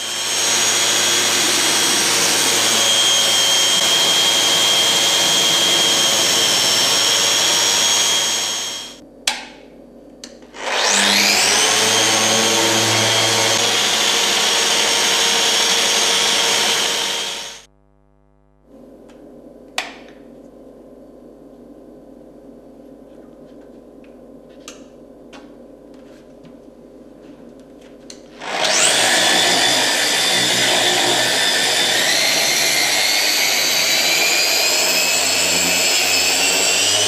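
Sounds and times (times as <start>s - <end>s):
orbital sander motor whine: 0.0s - 9.0s, 10.6s - 18.7s, 28.4s - 37.0s.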